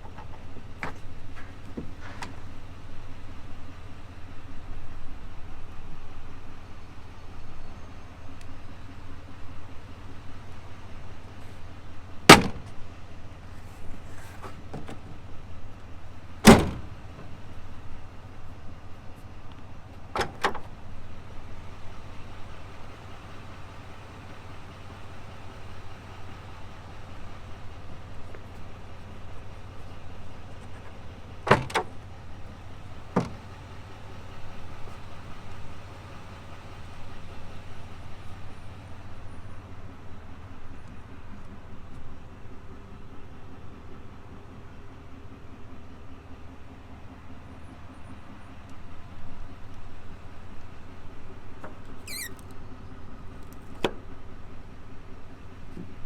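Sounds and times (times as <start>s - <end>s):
truck doors clunking shut: 0.0s - 3.3s, 10.0s - 22.5s, 25.6s - 36.1s, 47.8s - 56.0s.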